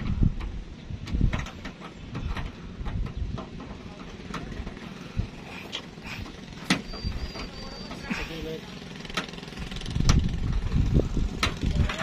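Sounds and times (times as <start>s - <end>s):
clicks and knocks on metal: 0.0s - 4.8s.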